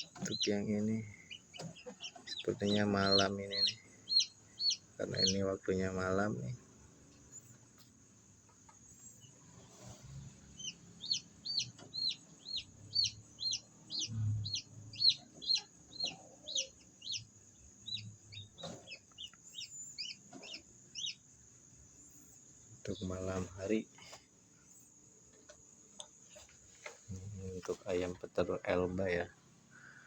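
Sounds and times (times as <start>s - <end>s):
chicks peeping: 0.0s - 6.6s, 10.5s - 21.4s, 22.9s - 23.8s.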